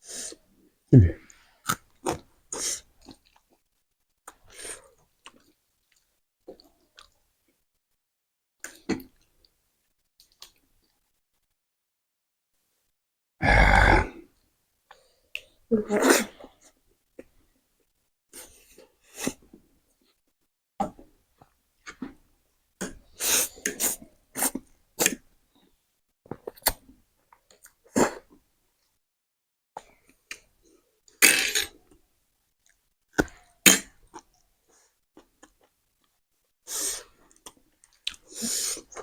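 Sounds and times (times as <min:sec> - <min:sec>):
people coughing: 0:01.0 - 0:01.2.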